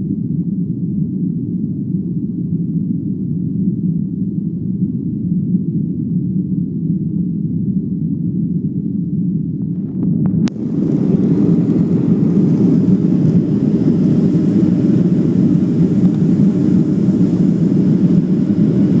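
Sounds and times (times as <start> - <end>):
jet engines roaring: 9.7 - 19.0.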